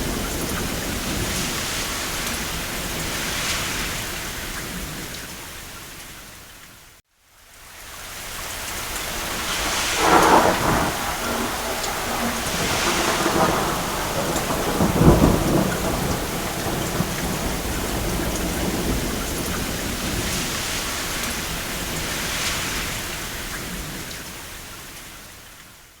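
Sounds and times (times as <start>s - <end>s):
rain falling: 0.0s - 26.0s
thunder rolling: 8.8s - 23.1s.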